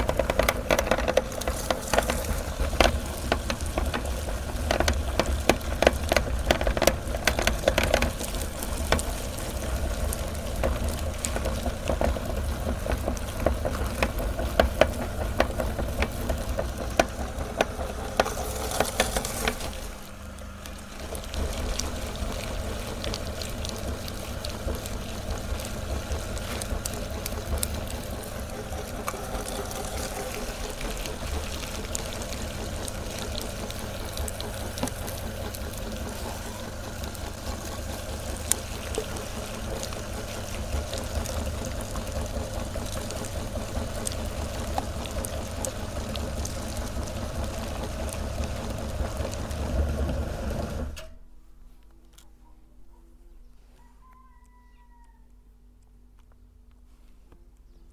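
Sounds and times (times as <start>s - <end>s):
electric meat grinder humming: 0.0s - 51.1s
candy squishing through grinder: 0.0s - 52.3s.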